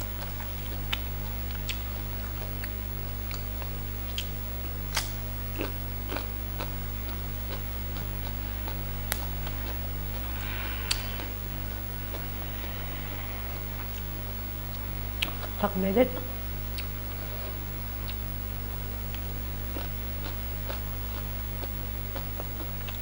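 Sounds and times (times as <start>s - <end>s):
chewing crunches: 0.0s - 18.3s, 19.0s - 23.0s
steady low hum: 0.0s - 23.0s
leafy greens being torn: 0.7s - 11.3s.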